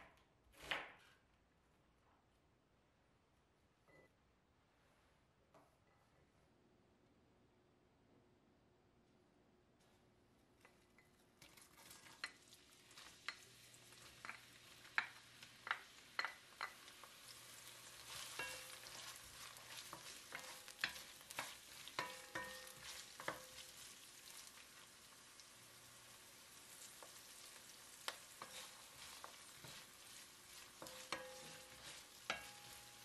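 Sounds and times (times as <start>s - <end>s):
onion sizzling in oil: 11.4s - 33.0s
wooden spoon scraping pot: 18.0s - 23.8s, 28.4s - 33.0s.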